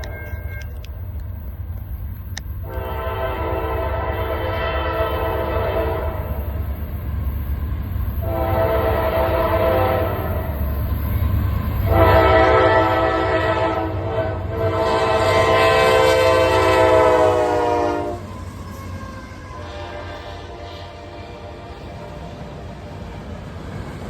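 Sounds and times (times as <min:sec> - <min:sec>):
low rumble of passing train: 0:00.0 - 0:24.0
locomotive air horn blasts: 0:02.6 - 0:06.6, 0:08.2 - 0:10.6, 0:11.8 - 0:22.3.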